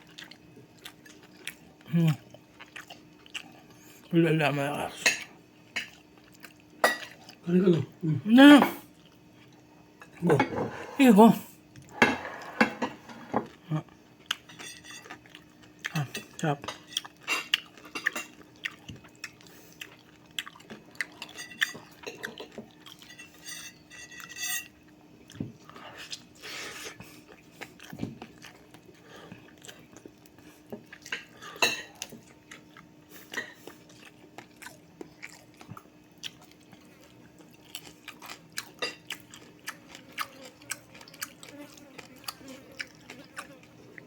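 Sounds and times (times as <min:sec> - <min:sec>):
chewing crunchy fried fish: 0:00.0 - 0:08.0, 0:08.8 - 0:10.3, 0:13.5 - 0:44.0
faint steady hum: 0:00.0 - 0:44.0
cutlery clinking on plate: 0:12.0 - 0:13.5.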